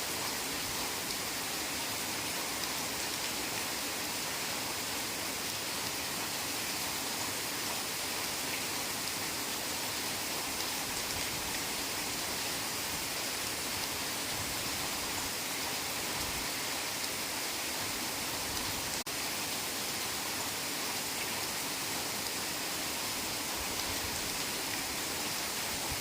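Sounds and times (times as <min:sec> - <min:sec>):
heavy rain in a forest: 0:00.0 - 0:26.0.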